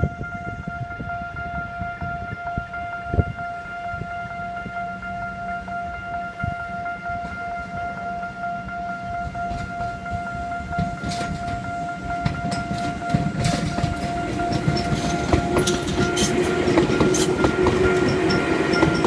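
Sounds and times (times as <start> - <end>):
level-crossing alarm ringing: 0.0 - 19.0
train wheels clattering over rail joints: 10.7 - 19.0.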